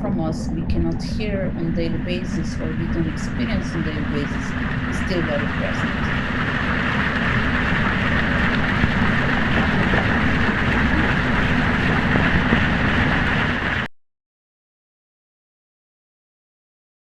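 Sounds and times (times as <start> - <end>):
underwater mechanical rumble: 0.0 - 13.9.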